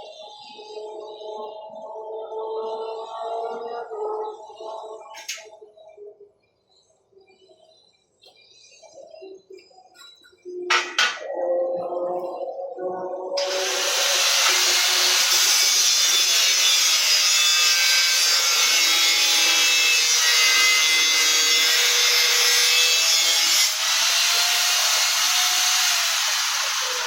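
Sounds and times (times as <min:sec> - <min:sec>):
power saw cutting wood: 0:13.4 - 0:27.0.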